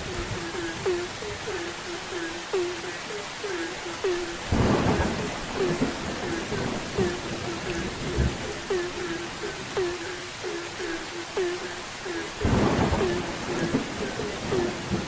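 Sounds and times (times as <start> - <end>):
frogs croaking: 0.0 - 15.0
steady rain: 0.0 - 15.0
thunder rumble: 4.1 - 10.1, 12.4 - 15.0
thunder crack: 4.5 - 8.4, 12.5 - 15.0.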